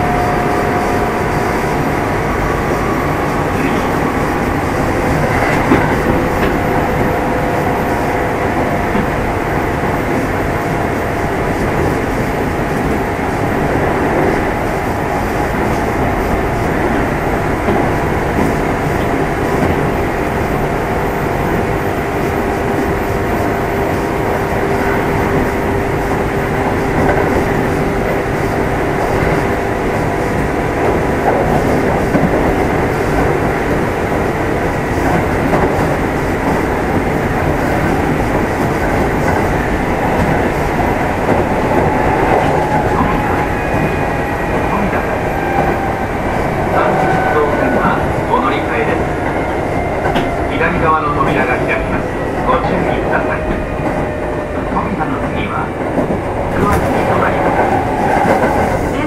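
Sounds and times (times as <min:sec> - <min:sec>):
train wheels rumbling on rails: 0:00.0 - 0:59.0
rail-joint clatter: 0:03.4 - 0:07.8, 0:46.8 - 0:59.0.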